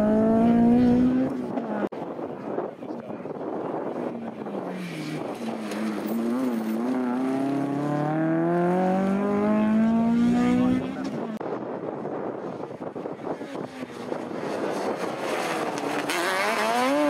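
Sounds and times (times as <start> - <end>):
car engine accelerating hard: 4.8 - 11.2, 13.6 - 17.0.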